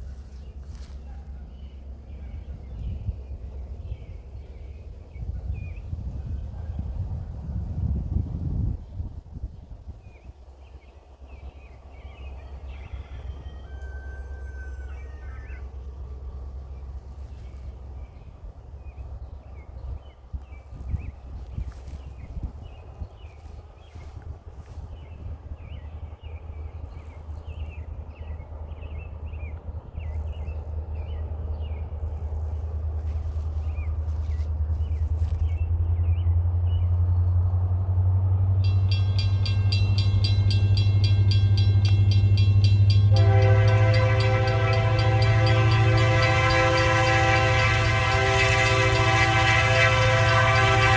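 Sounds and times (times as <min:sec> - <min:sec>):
low rumble of train: 0:00.0 - 0:50.9
railroad bell ringing: 0:38.5 - 0:50.9.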